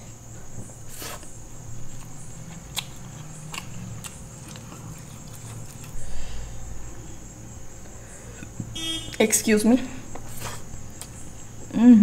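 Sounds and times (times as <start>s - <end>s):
person chewing food: 0.5s - 6.6s.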